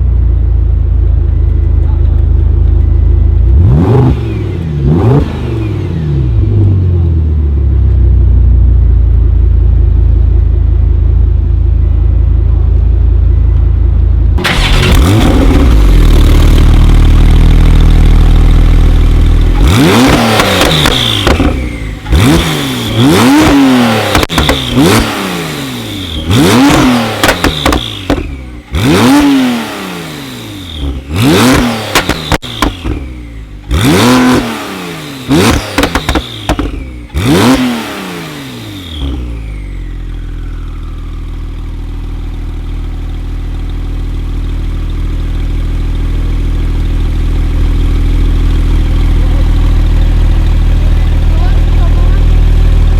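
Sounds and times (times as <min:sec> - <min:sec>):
car engine revving: 0:01.8 - 0:07.3, 0:14.4 - 0:52.9
exhaust pops and crackles: 0:14.4 - 0:22.4, 0:23.4 - 0:25.0, 0:26.6 - 0:28.4, 0:31.5 - 0:33.1, 0:35.4 - 0:36.9, 0:40.4 - 0:52.9.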